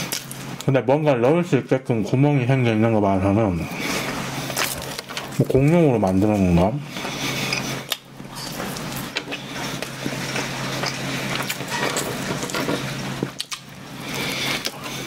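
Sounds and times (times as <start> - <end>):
steady low hum: 0.0 - 15.0
chewing bread: 3.8 - 15.0
wet mouth clicks and smacks: 13.4 - 13.7.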